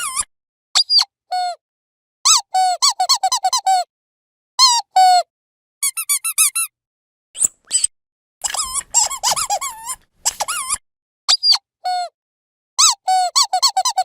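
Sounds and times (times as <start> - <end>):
rubber squeaky dog toy: 0.0 - 1.5, 2.3 - 3.9, 4.6 - 6.7, 7.4 - 12.1, 12.8 - 14.0.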